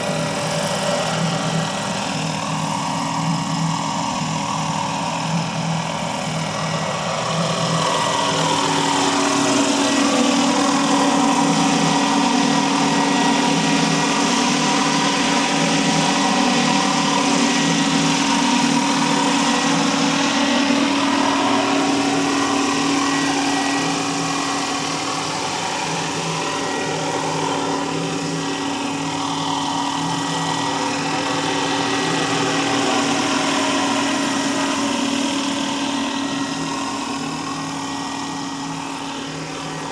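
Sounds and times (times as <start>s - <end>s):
model helicopter whine: 0.0s - 39.9s.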